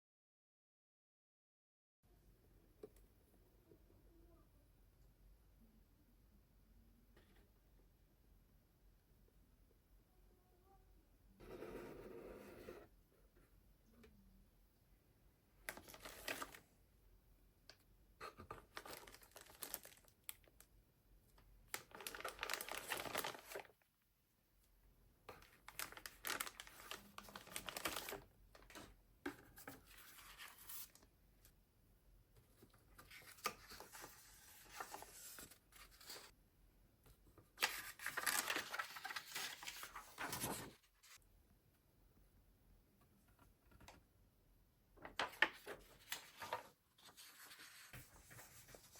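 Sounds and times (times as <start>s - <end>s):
plastic packaging crinkling: 18.7s - 20.4s, 21.8s - 23.7s, 25.7s - 28.2s.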